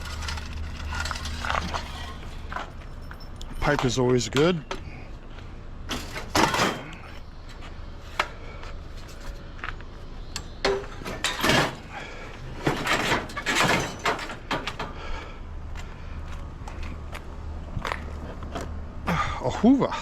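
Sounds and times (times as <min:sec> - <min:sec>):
scrap metal clanking and rattling: 0:00.0 - 0:04.5, 0:05.9 - 0:07.2, 0:10.4 - 0:15.2
low steady hum: 0:00.0 - 0:20.0.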